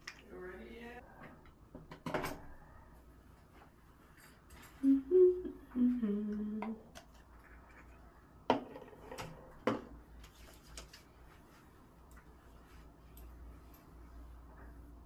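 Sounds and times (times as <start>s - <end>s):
person humming: 4.8s - 6.9s.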